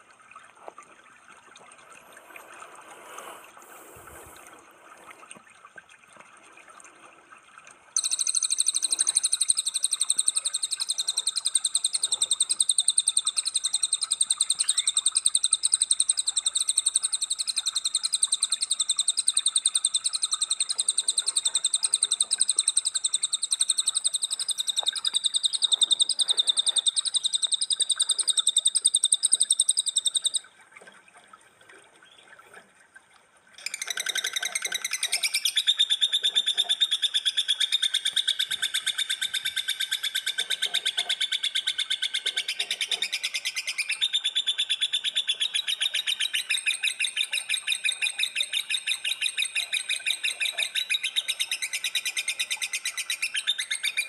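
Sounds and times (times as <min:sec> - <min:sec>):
songbird fast high trill: 0:08.0 - 0:12.7.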